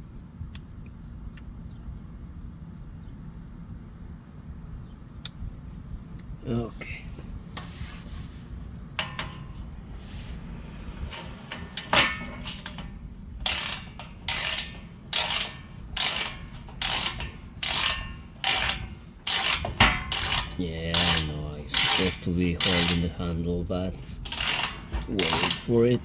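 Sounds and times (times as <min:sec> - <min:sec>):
metal clicks and clank: 0:08.9 - 0:10.3, 0:11.0 - 0:26.0
torque wrench ratcheting: 0:11.0 - 0:26.0.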